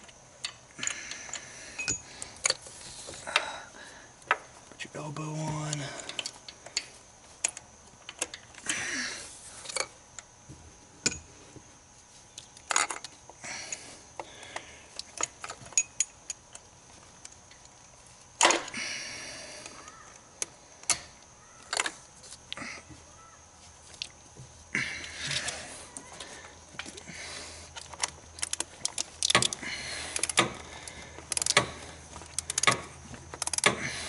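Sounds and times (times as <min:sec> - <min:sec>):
socket wrench clicking: 0:31.3 - 0:31.7, 0:32.3 - 0:32.8.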